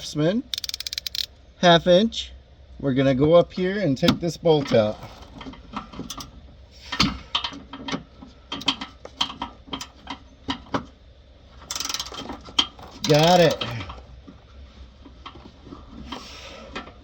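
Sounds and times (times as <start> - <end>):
ratchet clicking: 0.5 - 1.3, 11.7 - 12.2, 13.0 - 13.7.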